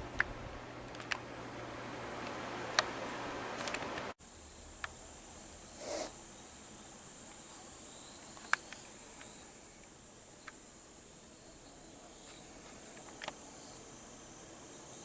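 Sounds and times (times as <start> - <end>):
sharp clicks: 0.0 - 1.3, 2.2 - 4.1, 8.3 - 10.6, 12.2 - 13.4
high-pitched insect trill: 4.2 - 15.0.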